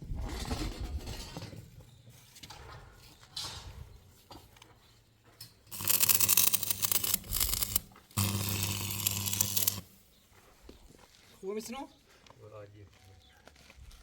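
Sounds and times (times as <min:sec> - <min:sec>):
electric power tool running: 0:05.7 - 0:10.0.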